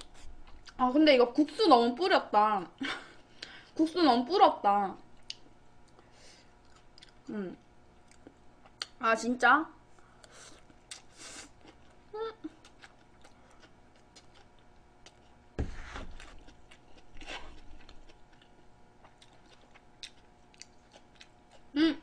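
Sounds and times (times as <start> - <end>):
person chewing and slurping noodles: 10.2 - 21.7.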